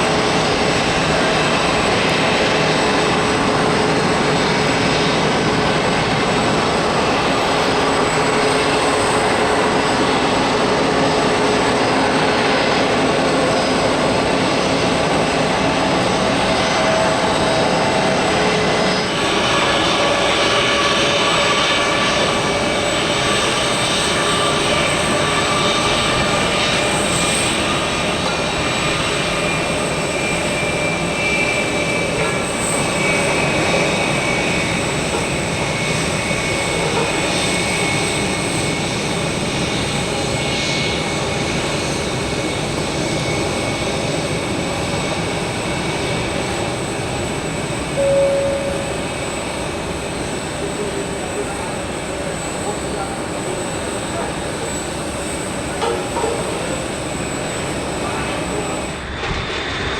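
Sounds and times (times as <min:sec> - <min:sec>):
jet engines roaring: 0:00.0 - 0:59.9
short tone: 0:48.0 - 0:49.6.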